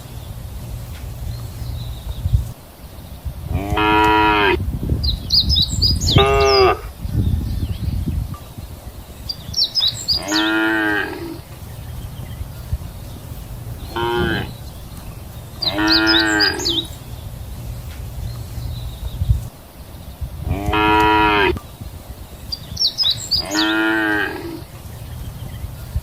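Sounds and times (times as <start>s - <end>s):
steady low rumble: 0.0s - 10.2s, 11.1s - 23.4s
cattle mooing: 3.5s - 4.6s, 6.1s - 6.9s, 10.2s - 11.4s, 13.9s - 14.5s, 15.6s - 16.9s, 20.4s - 21.6s, 23.4s - 24.7s.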